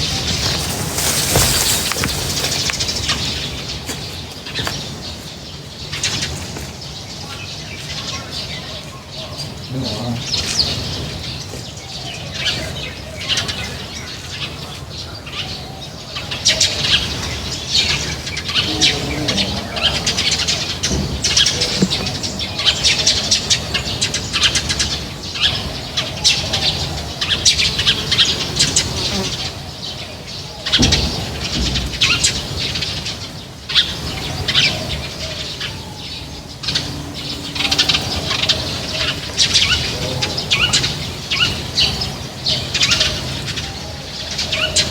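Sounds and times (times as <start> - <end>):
wings fluttering: 0.0 - 4.7
small birds chirping: 0.0 - 44.9.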